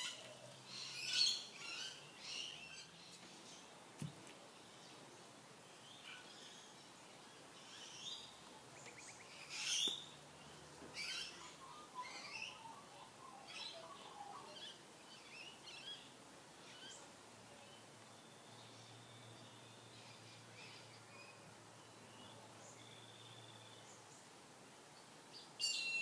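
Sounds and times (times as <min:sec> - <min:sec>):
birds chirping and singing: 0:00.0 - 0:05.0, 0:05.7 - 0:21.4.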